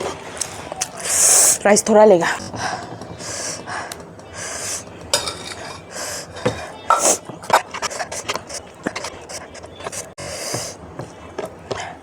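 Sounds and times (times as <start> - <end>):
cutlery clinking against dish: 5.0 - 11.6
chewing and mouth sounds: 7.0 - 11.9.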